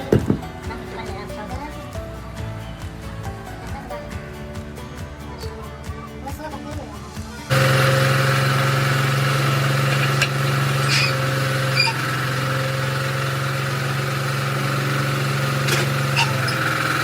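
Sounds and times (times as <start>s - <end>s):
diesel truck engine idling: 7.4s - 17.0s.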